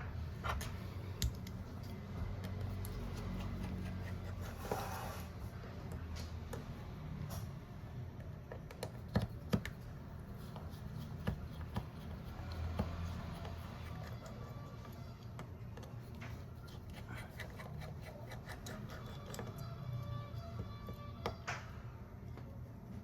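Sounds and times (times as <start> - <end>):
hand tools clicking and tapping: 10.5 - 14.4.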